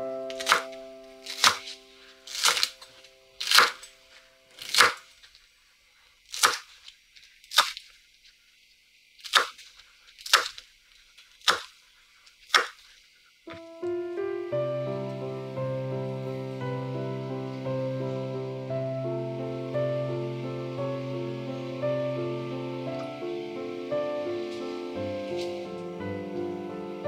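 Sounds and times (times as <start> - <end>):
sharp cracks: 0.3 - 5.4, 6.3 - 8.0, 9.2 - 13.0
held musical notes: 13.5 - 27.0.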